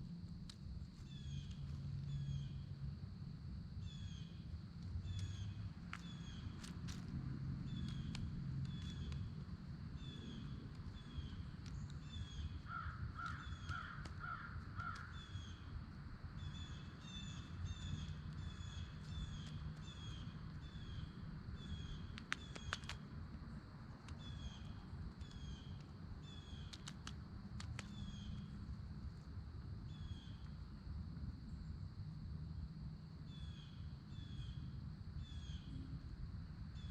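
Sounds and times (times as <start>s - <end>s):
low background rumble: 0.0s - 36.9s
harsh bird calls: 10.0s - 15.7s
sharp clicks: 22.1s - 23.1s, 26.6s - 28.4s.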